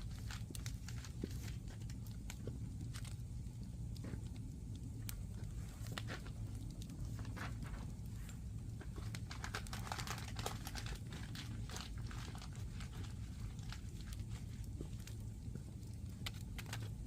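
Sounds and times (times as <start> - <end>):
fire low rumble: 0.0 - 17.0
firewood crackling and popping: 0.0 - 17.0.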